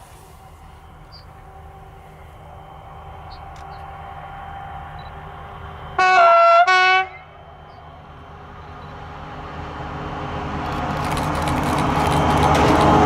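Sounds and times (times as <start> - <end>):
train rumble: 0.0 - 13.0
two-tone locomotive horn: 0.6 - 9.0.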